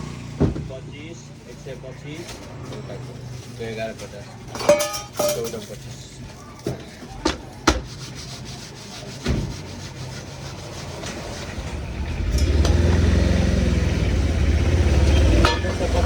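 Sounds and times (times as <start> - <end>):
loud low motor rumble: 11.0 - 16.0.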